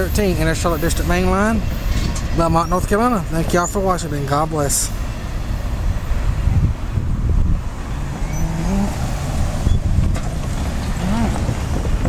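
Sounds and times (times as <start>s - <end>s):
passing vehicles rumbling: 0.0s - 12.0s.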